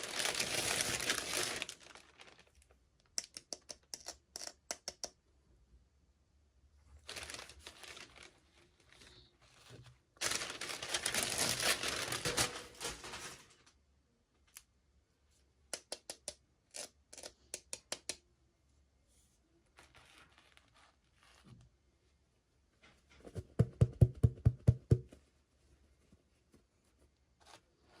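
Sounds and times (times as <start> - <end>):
packaging rustling and tearing: 0.0 - 2.6, 7.0 - 13.7
packaging crinkling: 0.0 - 2.7, 7.0 - 9.3, 10.2 - 13.7.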